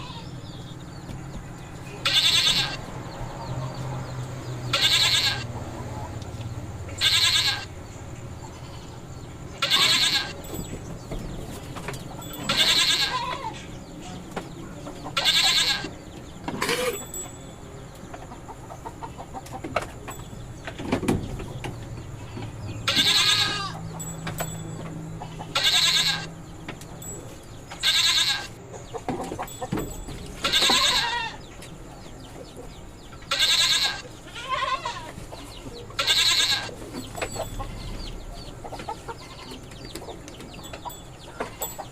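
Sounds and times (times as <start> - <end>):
goats bleating: 0.0 - 0.3, 2.0 - 2.8, 4.7 - 5.5, 7.0 - 7.7, 9.6 - 10.4, 12.4 - 13.6, 15.2 - 16.0, 22.2 - 23.9, 25.2 - 26.4, 27.8 - 28.5, 30.4 - 31.4, 33.3 - 35.2, 36.0 - 38.1.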